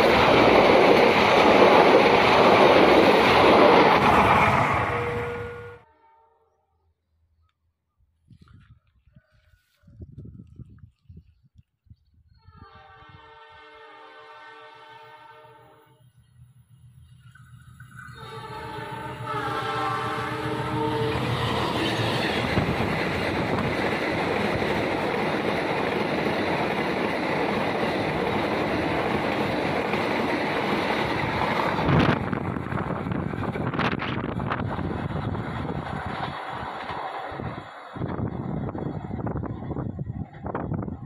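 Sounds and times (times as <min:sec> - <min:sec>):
train wheels rolling on rails: 0:00.0 - 0:05.4, 0:16.2 - 0:41.0
train horn chord: 0:04.8 - 0:06.7, 0:12.6 - 0:16.0, 0:18.1 - 0:21.9.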